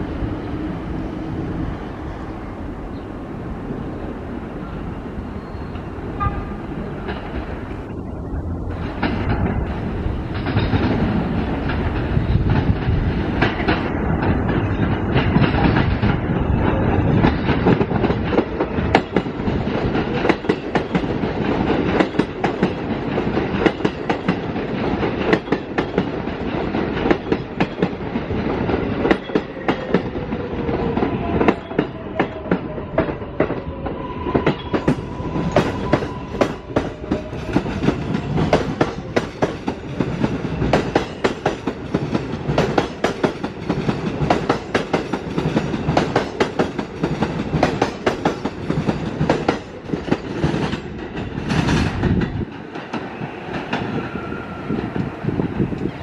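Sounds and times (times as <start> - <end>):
train wheels clacking over rail joints: 8.7 - 33.6, 34.4 - 54.2.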